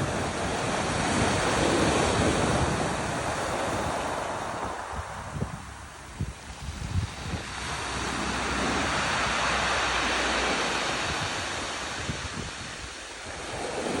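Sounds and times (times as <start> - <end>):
ocean waves breaking: 0.0 - 14.0.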